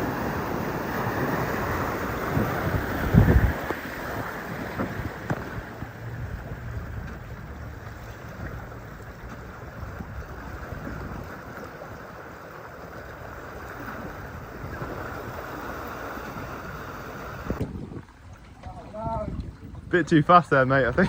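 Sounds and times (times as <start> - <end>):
wind buffeting microphone: 0.0 - 12.2, 13.0 - 21.0
vehicle rumble and wind rush: 0.0 - 21.0.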